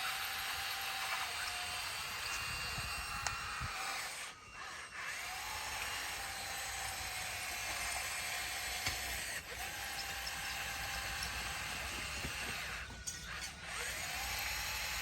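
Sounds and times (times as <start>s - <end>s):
bulldozer running: 5.0s - 15.0s.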